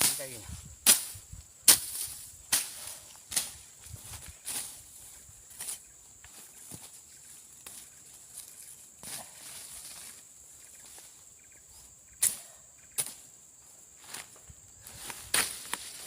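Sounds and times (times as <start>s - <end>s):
machete slashing through brush: 0.0s - 3.6s, 15.2s - 16.0s.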